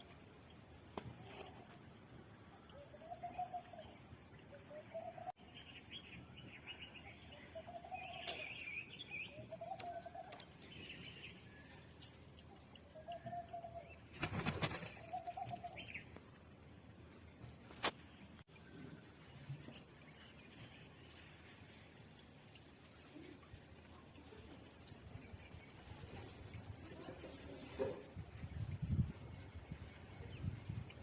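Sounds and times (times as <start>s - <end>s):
bird higher chirps: 25.2s - 27.8s.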